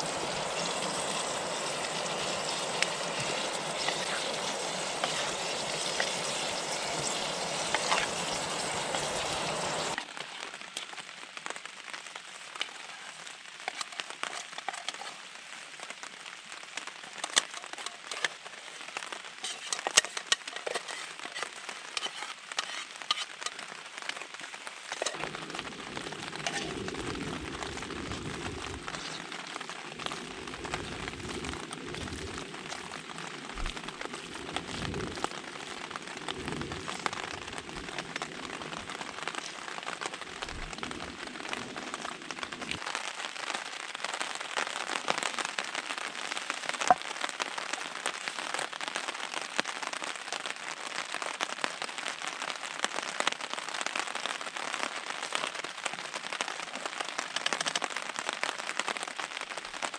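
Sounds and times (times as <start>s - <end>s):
steady rain falling: 0.0s - 59.9s
low rumbling: 25.2s - 42.8s.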